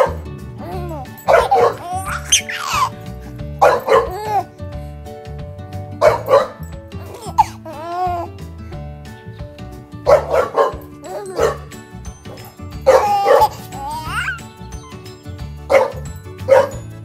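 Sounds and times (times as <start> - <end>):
background music: 0.0 - 17.0
puppy barking and yipping: 1.0 - 3.0, 3.6 - 4.5, 6.0 - 8.3, 10.1 - 16.8.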